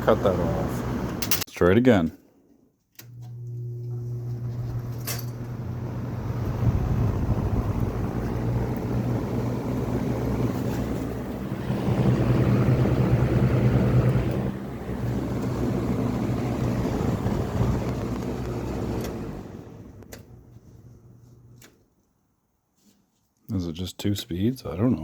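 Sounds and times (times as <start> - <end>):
electric fan motor hum: 0.0 - 1.4, 3.0 - 21.8
fan air rushing: 0.0 - 1.4, 4.3 - 21.7.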